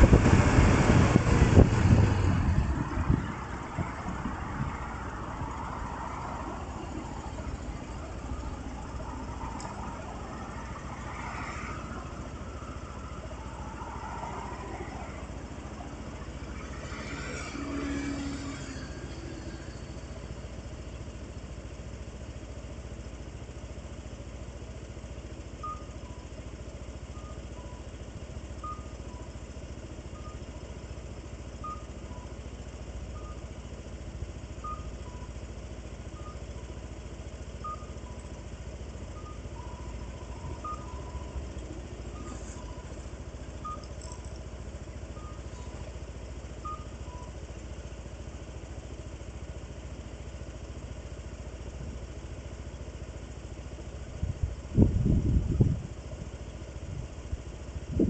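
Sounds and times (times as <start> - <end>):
turn signal ticking: 0.0 - 17.4, 25.0 - 50.4
vehicle engine rumble: 0.0 - 58.0.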